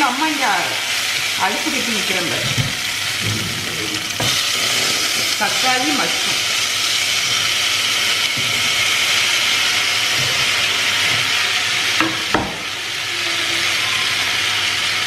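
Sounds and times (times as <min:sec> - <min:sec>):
vegetables sizzling in hot oil: 0:00.0 - 0:15.0
sharp knocks: 0:12.0 - 0:12.6.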